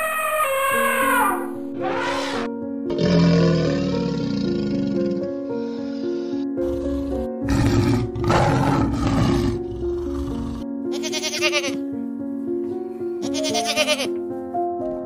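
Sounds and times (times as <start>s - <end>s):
background music: 0.0s - 15.0s
goat bleating: 10.9s - 11.8s, 13.2s - 14.1s.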